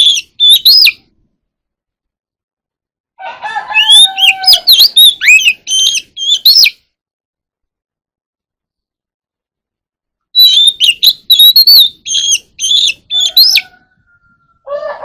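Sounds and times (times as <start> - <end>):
bird whistling song: 0.0 - 1.1, 3.7 - 6.9, 10.3 - 14.7
low drawn-out bird call: 10.3 - 15.0.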